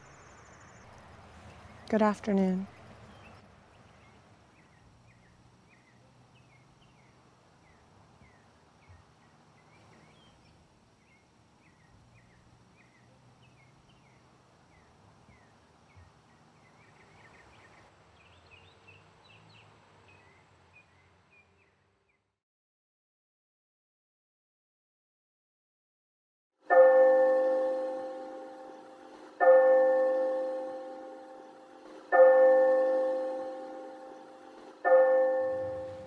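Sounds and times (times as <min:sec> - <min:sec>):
small birds chirping: 0:00.0 - 0:22.3.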